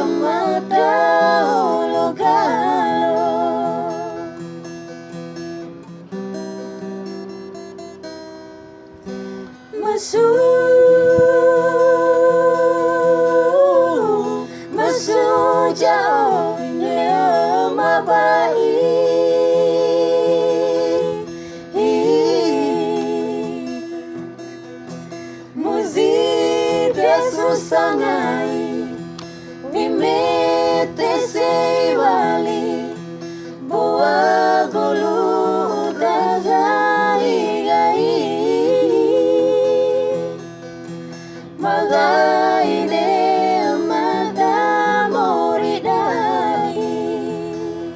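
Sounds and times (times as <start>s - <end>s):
acoustic guitar: 0.0s - 47.9s
person singing long wavering notes: 9.8s - 24.2s.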